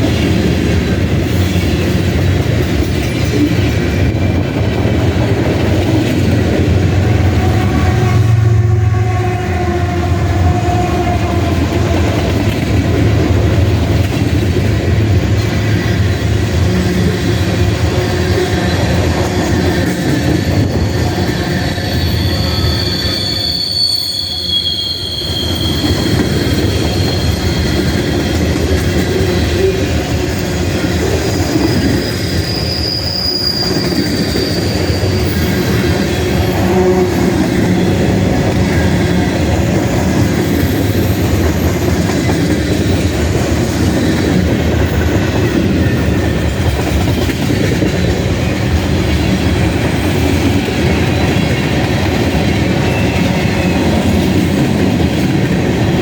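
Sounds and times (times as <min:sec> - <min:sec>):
steel wheels rumbling on rail: 0:00.0 - 0:56.0
high wheel squeals: 0:16.5 - 0:28.5, 0:29.1 - 0:54.5.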